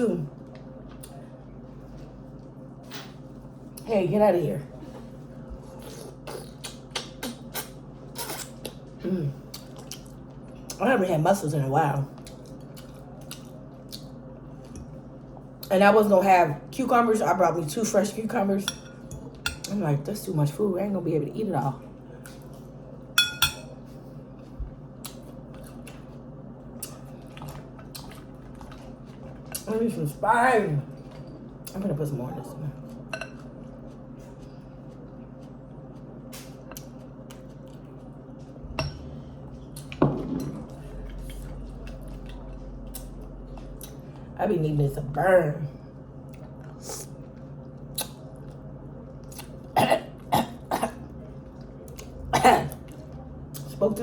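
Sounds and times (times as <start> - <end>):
low steady hum: 0.0 - 54.0
woman coughing: 49.8 - 51.0, 52.3 - 52.8.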